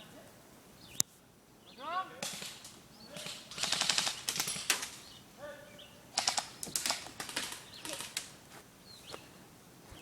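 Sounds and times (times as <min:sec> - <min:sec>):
birds chirping: 0:00.7 - 0:10.0
airsoft guns firing bursts: 0:02.2 - 0:05.0, 0:06.1 - 0:08.3.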